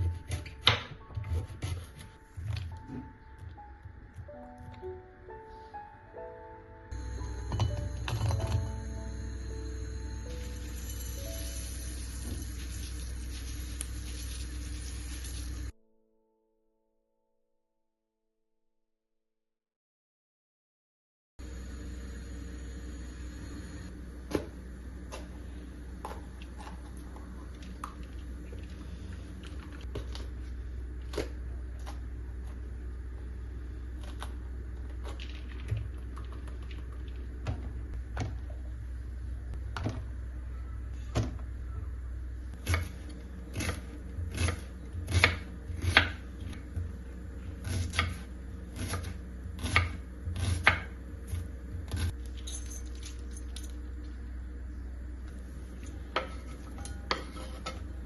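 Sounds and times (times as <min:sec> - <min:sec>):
steady low hum: 0:06.9 - 0:15.7, 0:21.4 - 0:58.0.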